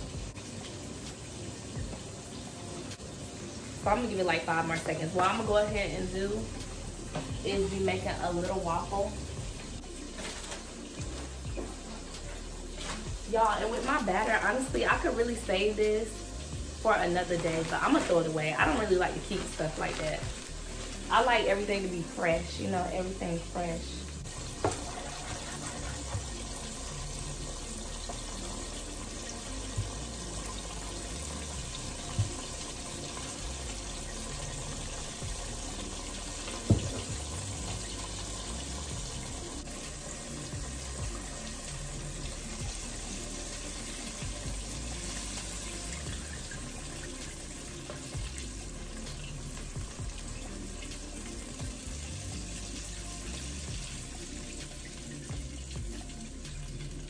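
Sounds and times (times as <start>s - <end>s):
tap running into sink: 24.6s - 25.5s, 36.5s - 37.3s
dishes knocking against sink: 36.7s - 37.2s.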